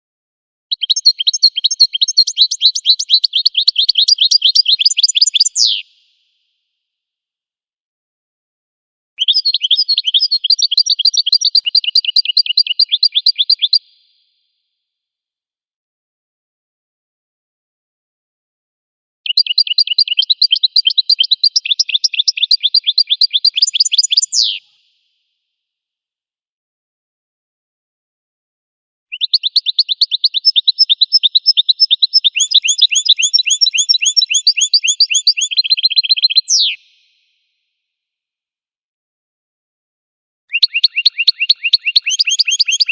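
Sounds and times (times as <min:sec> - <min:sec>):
bird whistled song: 0:00.7 - 0:05.9, 0:09.2 - 0:14.0, 0:19.3 - 0:24.8, 0:29.1 - 0:37.3, 0:40.5 - 0:42.9
goldfinch trilling: 0:29.1 - 0:36.8, 0:40.5 - 0:42.9.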